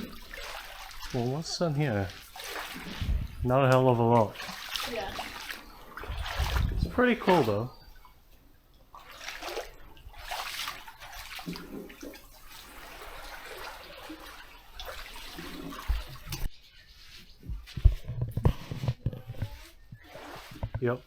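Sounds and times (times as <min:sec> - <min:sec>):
water washing over rocks: 0:00.0 - 0:07.7.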